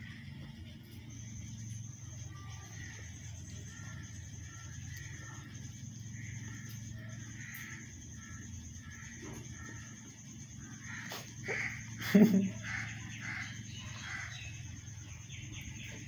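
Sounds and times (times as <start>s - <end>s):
mynah birds calling: 0.0s - 16.0s
steady low hum: 0.0s - 16.0s.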